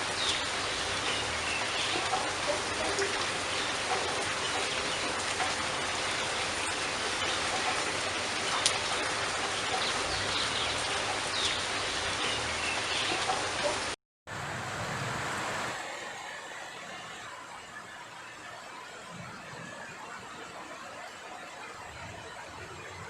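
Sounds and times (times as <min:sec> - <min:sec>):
drips ticking: 0:00.0 - 0:14.0
rain falling on leaves: 0:00.0 - 0:17.5.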